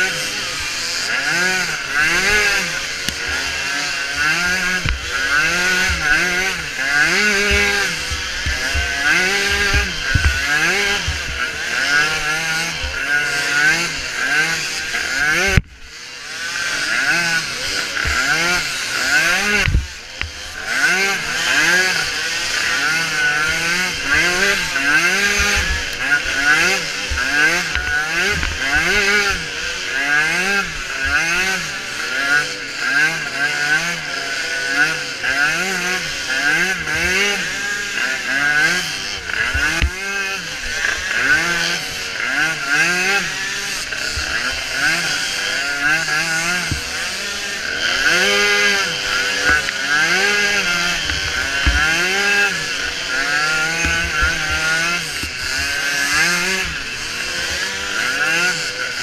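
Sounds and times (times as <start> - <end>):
small atv engines racing: 0.0 - 59.0.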